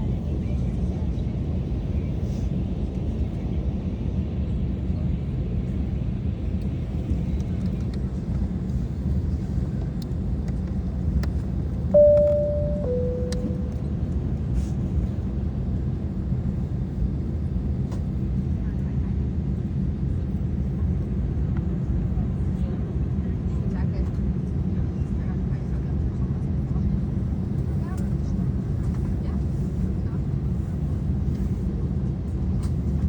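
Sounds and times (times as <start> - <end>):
airliner cabin rumble: 4.6 - 14.1
two-note falling chime: 12.0 - 13.8.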